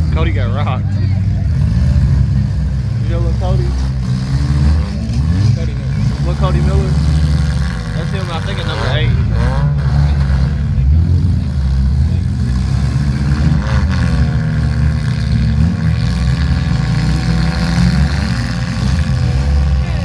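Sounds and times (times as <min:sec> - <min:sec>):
car engines rumbling and revving: 0:00.0 - 0:20.0.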